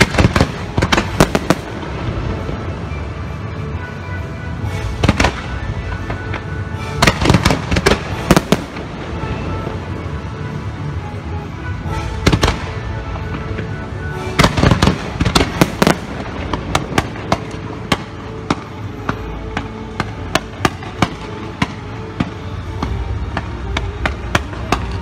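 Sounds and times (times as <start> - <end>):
sharp fireworks pops: 0.0 - 2.6, 5.0 - 9.7, 12.2 - 13.8, 14.4 - 25.0
fireworks bangs: 0.0 - 3.9, 4.6 - 10.2, 11.8 - 25.0.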